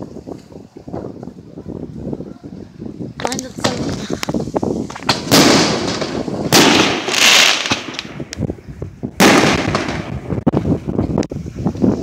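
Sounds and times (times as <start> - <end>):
fireworks hissing crackle: 2.8 - 12.0
firework bangs: 3.2 - 8.4, 9.1 - 10.6
firework pops: 3.2 - 8.5.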